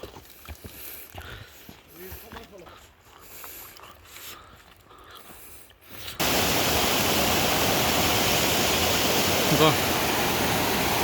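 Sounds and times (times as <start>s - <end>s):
footsteps crunching on rocky trail: 0.0s - 6.2s
mountain stream rushing: 6.2s - 11.0s.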